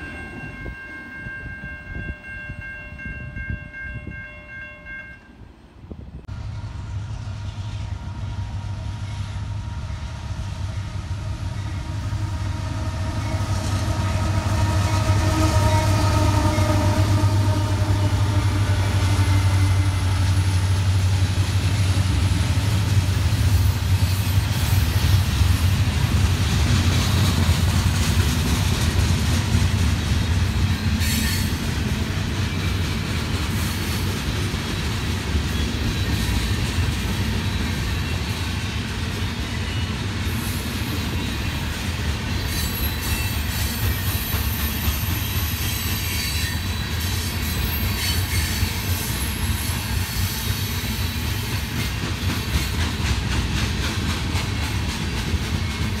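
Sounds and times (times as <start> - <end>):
diesel locomotive engines rumbling: 0.0 - 56.0
train horn: 6.3 - 21.0.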